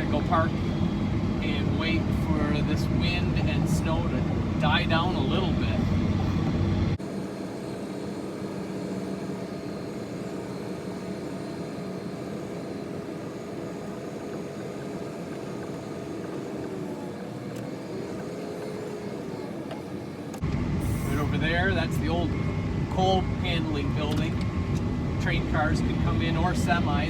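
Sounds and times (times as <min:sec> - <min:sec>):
snowplow engine droning: 0:00.0 - 0:27.0.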